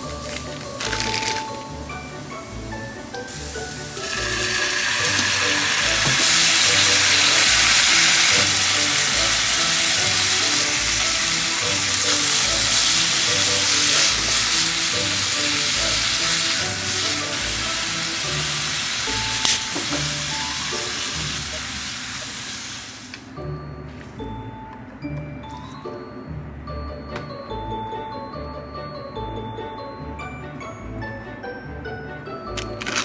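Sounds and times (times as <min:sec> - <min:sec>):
food sizzling in frying pan: 0:00.0 - 0:23.2
background music: 0:00.0 - 0:33.0.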